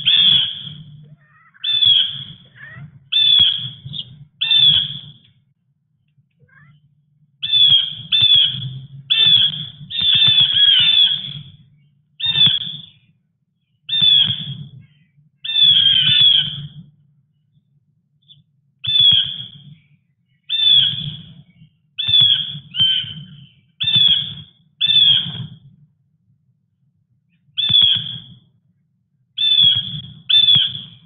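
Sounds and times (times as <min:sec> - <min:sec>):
bird squawking: 0:00.0 - 0:05.3, 0:06.4 - 0:11.6, 0:12.2 - 0:13.1, 0:13.9 - 0:16.8, 0:18.8 - 0:19.8, 0:20.4 - 0:25.5, 0:27.6 - 0:28.2, 0:29.4 - 0:31.0.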